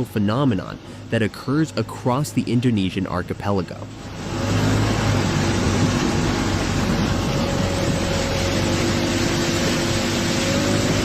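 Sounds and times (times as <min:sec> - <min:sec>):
loud rushing water: 0:00.0 - 0:11.0
motor humming: 0:03.9 - 0:11.0.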